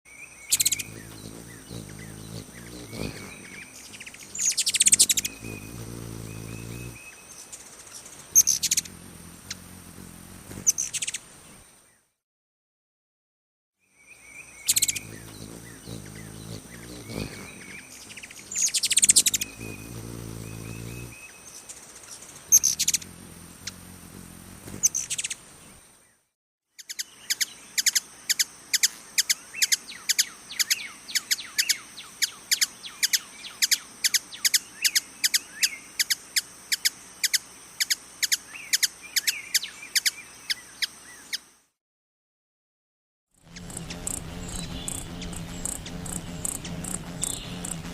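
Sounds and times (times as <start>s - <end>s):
hummingbird chirps: 0.2s - 11.6s, 14.0s - 25.8s, 26.8s - 41.4s, 43.4s - 47.9s
high thin whine: 43.5s - 47.9s
low hum: 43.5s - 47.9s.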